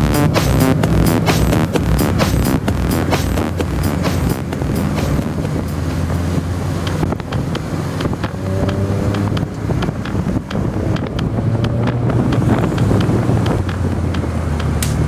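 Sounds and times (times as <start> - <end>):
car engine and exhaust passing: 0.0 - 15.0
wind buffeting microphone: 5.3 - 15.0.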